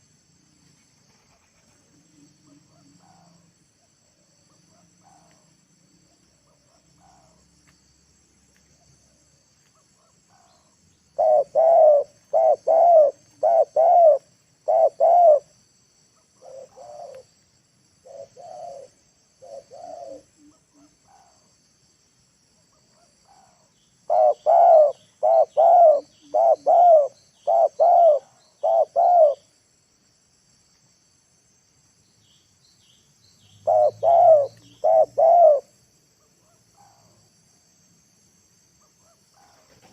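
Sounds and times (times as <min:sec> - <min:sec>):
high insect drone: 0:00.0 - 0:39.9
dove cooing: 0:11.1 - 0:15.5, 0:16.4 - 0:17.3, 0:18.0 - 0:21.3, 0:23.3 - 0:29.5, 0:33.6 - 0:35.7.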